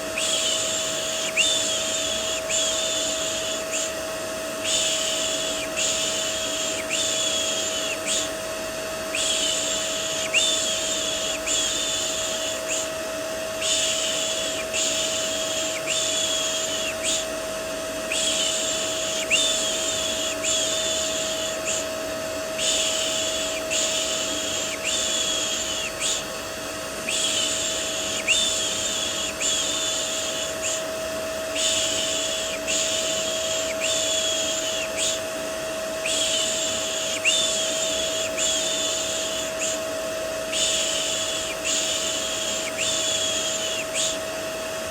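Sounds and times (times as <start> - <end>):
vacuum cleaner motor humming: 0.0 - 44.9.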